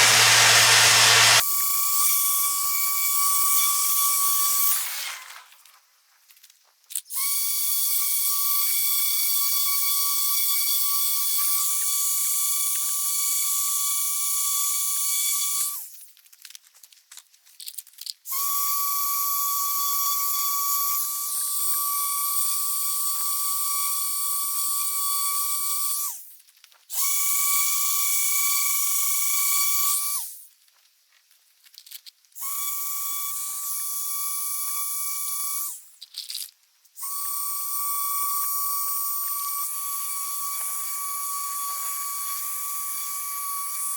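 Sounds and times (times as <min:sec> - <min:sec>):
electric sander whining: 0:00.0 - 0:01.4, 0:04.6 - 0:05.5.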